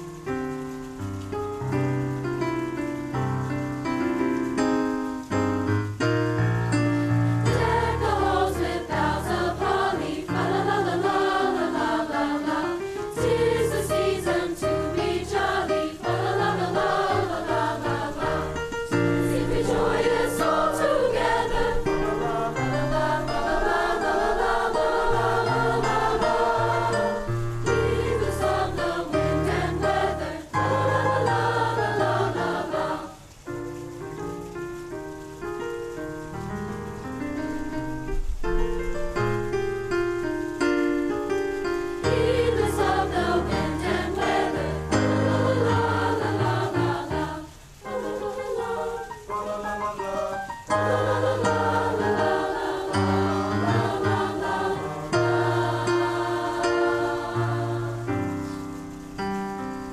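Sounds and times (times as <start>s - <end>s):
choir singing: 7.4s - 33.3s, 42.0s - 58.6s.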